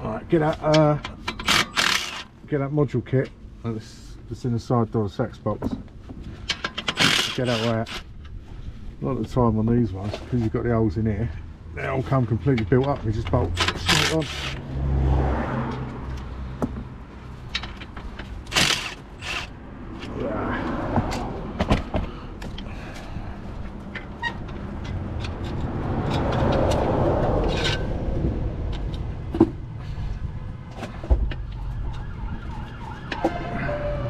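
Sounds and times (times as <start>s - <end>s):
passing traffic: 0.0s - 5.1s, 5.8s - 34.0s
metal tools clinking: 12.8s - 14.6s.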